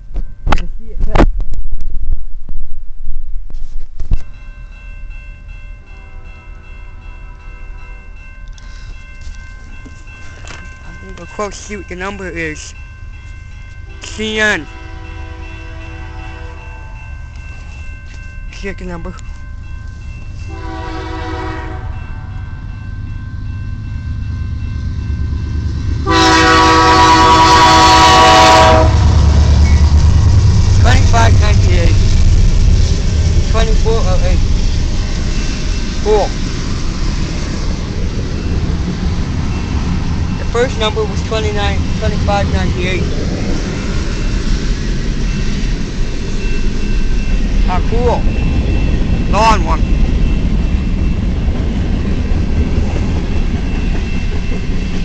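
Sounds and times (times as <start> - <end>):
freight train rumble: 0.0 - 55.0
locomotive air horn blasts: 13.9 - 17.1, 20.5 - 22.1, 26.0 - 29.2
steady high tones: 21.9 - 26.1, 28.9 - 55.0.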